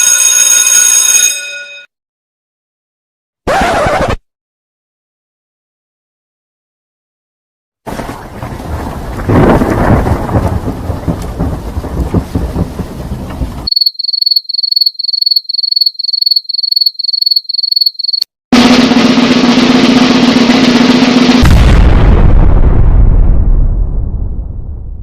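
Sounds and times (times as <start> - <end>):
rain: 7.9 - 13.7
thunder rumble: 7.9 - 13.7, 21.4 - 25.0
cricket chirping: 13.7 - 18.3.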